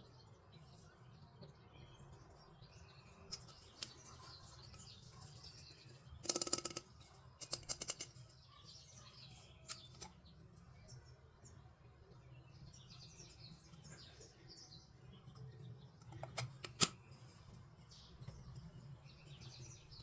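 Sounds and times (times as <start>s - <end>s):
faint bird chirping: 0.0s - 20.0s
toys clicking and tapping: 3.3s - 8.4s.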